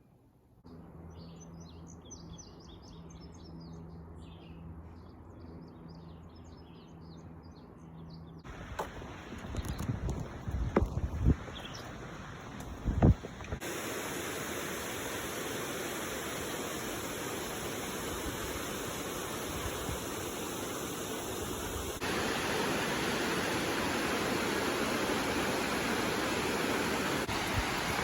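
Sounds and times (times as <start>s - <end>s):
water rushing down cascades: 13.4s - 28.0s.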